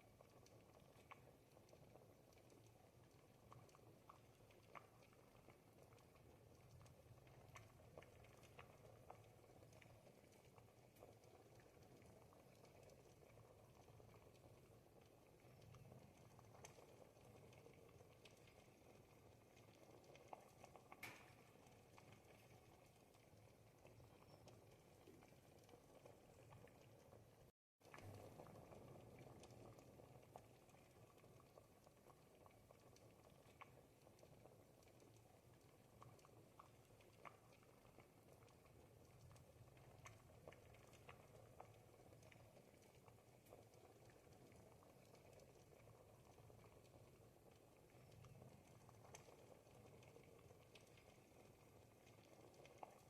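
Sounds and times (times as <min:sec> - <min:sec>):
soup bubbling and popping: 0:00.0 - 0:53.0.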